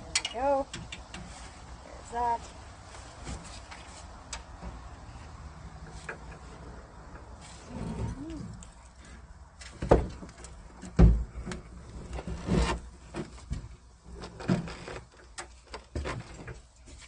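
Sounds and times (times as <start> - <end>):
car body parts clunking: 9.6 - 17.0.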